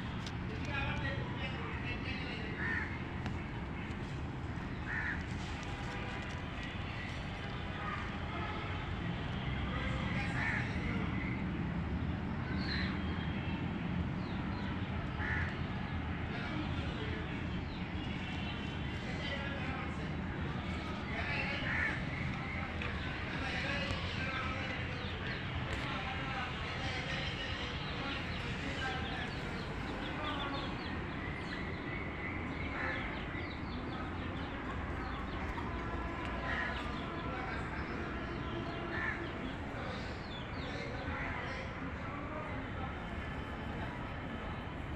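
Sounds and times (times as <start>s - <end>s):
steady background noise: 0.0s - 44.9s
harsh bird calls: 1.4s - 8.7s, 17.6s - 42.1s.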